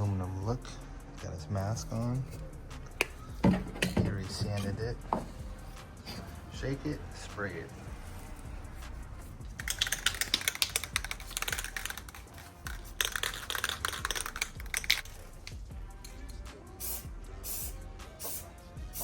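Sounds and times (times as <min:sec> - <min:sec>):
spray can rattling when shaken: 0:09.5 - 0:19.0.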